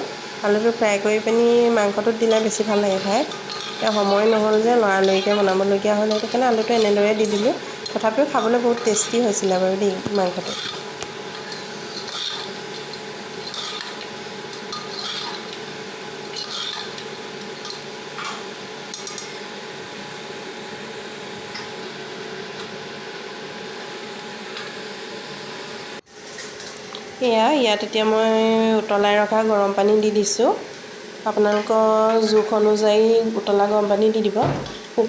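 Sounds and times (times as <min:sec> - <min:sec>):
steady hum: 0:00.0 - 0:35.0
metal spoon scraping a pot: 0:03.0 - 0:09.2, 0:10.3 - 0:15.6, 0:16.3 - 0:17.0.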